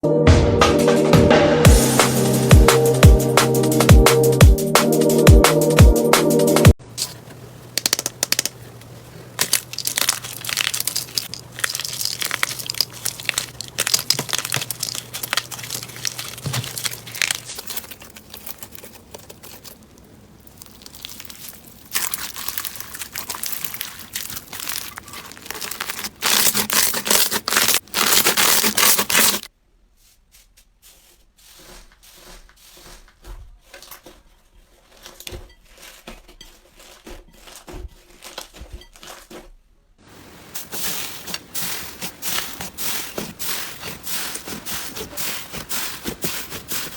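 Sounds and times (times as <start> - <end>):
slime crackling and popping: 7.0 - 29.5.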